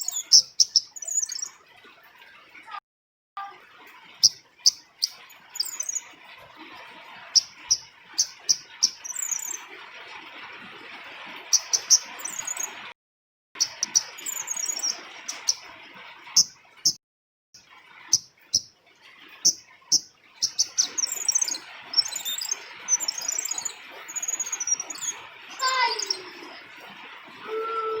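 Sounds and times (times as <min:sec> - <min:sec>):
bird chirping and twittering: 0:00.0 - 0:01.6, 0:04.2 - 0:06.2, 0:07.2 - 0:09.7, 0:11.5 - 0:12.9, 0:13.6 - 0:15.7, 0:16.3 - 0:17.0, 0:18.1 - 0:18.7, 0:19.4 - 0:28.0.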